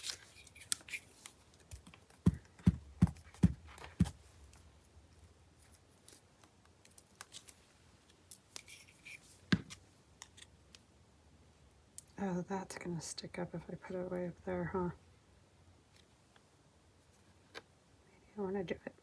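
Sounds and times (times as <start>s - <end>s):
paper handling: 0.0s - 4.7s, 5.6s - 7.7s.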